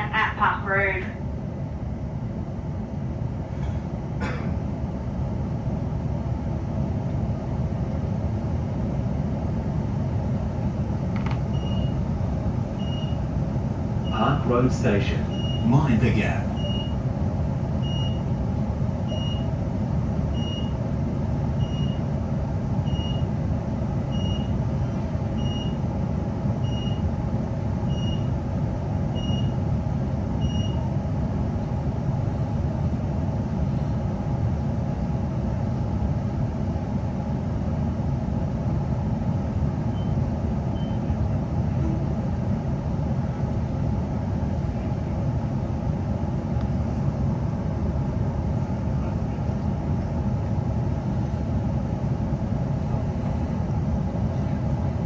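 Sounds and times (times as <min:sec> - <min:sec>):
low rumble of train: 0:00.0 - 0:55.0
high electronic door warning beep: 0:11.5 - 0:12.0, 0:12.8 - 0:13.2, 0:15.3 - 0:15.8, 0:16.6 - 0:17.0, 0:17.8 - 0:18.3, 0:19.1 - 0:19.5, 0:20.3 - 0:20.8, 0:21.6 - 0:22.0, 0:22.8 - 0:23.3, 0:24.1 - 0:24.6, 0:25.4 - 0:25.8, 0:26.6 - 0:27.0, 0:27.9 - 0:28.3, 0:29.2 - 0:29.6, 0:30.4 - 0:30.8.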